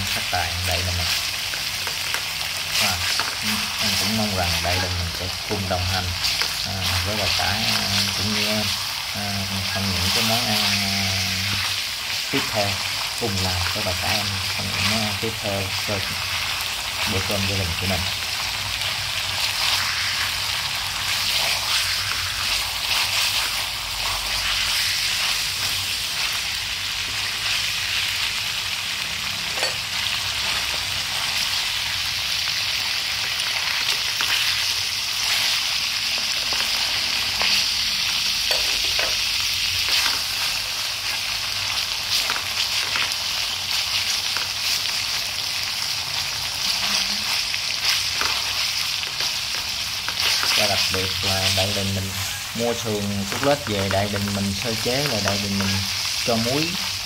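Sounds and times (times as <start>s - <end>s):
meat sizzling in oil: 0.0s - 57.0s
chopsticks scraping wok: 0.2s - 8.8s, 33.8s - 41.2s, 46.6s - 56.8s.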